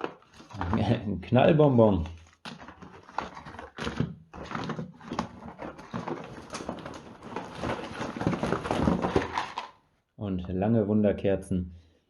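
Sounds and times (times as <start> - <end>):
packaging rustling and clattering: 0.0 - 1.0, 1.8 - 9.8.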